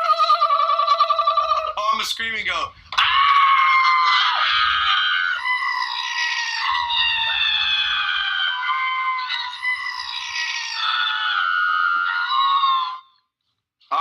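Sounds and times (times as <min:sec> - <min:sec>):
man screaming like a goat: 0:03.0 - 0:05.9.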